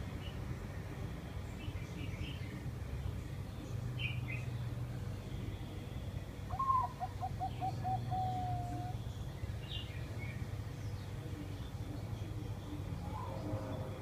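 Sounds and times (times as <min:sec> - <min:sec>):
steady low hum: 0:00.0 - 0:14.0
dove cooing: 0:06.5 - 0:09.0.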